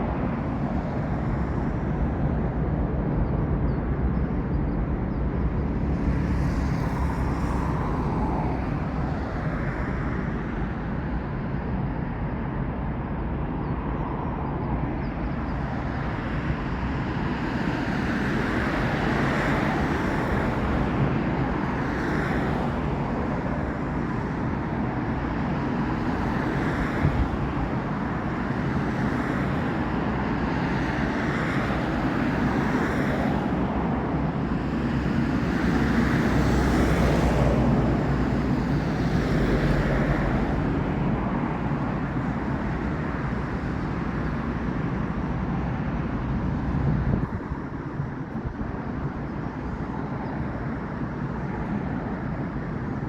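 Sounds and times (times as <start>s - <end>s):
road traffic: 3.8s - 53.0s.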